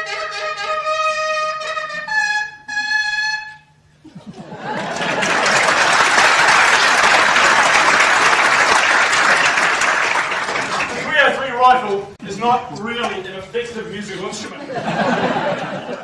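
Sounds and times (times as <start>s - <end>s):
rifle played like a bugle: 0.0s - 3.9s
audience applause: 4.7s - 14.6s.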